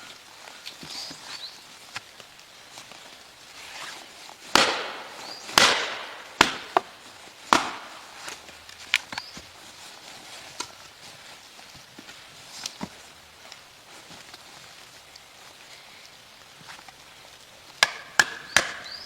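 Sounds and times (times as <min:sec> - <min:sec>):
loud sharp wooden cracks: 0:03.7 - 0:09.6, 0:17.7 - 0:19.0.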